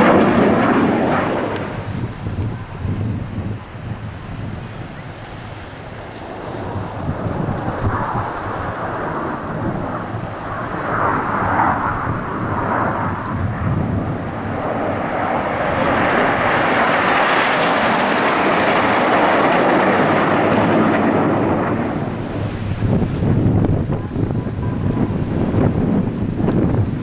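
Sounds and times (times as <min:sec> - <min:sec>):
aircraft flying past: 0:00.0 - 0:27.0.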